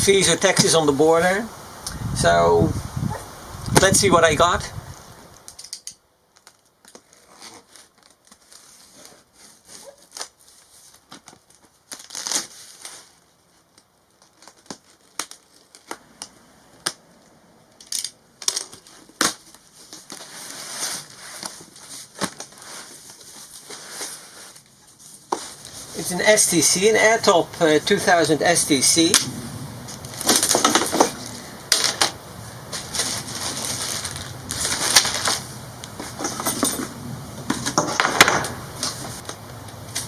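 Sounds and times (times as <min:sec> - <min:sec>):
packaging crinkling and tearing: 0:06.3 - 0:16.0, 0:29.9 - 0:36.2.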